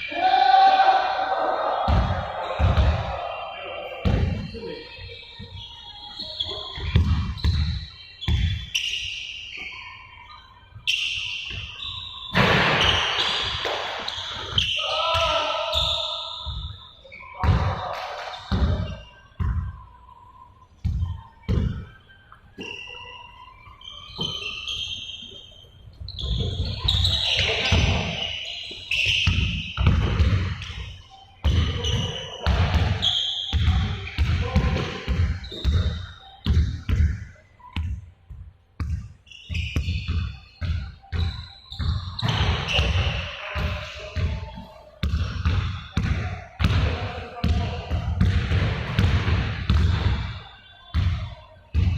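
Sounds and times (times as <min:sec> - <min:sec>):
balls bouncing on hard floor: 0:01.9 - 0:03.0, 0:06.8 - 0:08.7, 0:29.0 - 0:51.9.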